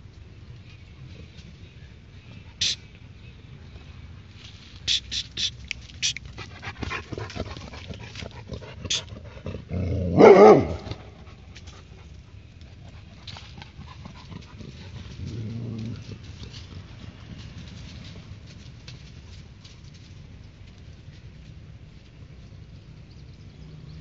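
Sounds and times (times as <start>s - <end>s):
faint dog call: 2.5s - 2.9s, 4.9s - 6.3s
dog barking: 10.1s - 11.0s.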